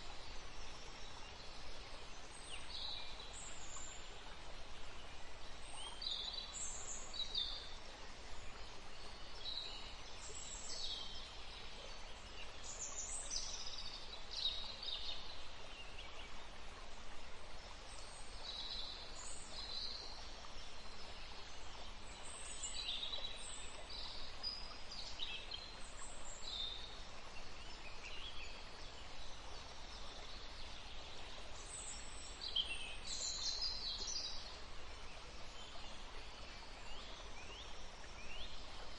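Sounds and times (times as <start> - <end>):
steady background hiss: 0.0 - 38.9.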